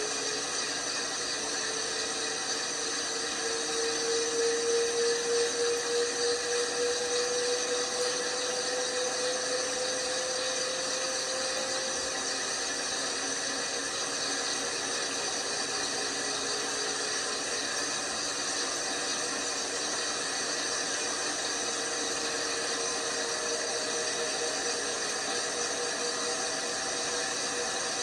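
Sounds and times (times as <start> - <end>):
washing machine whirring: 0.0 - 28.0.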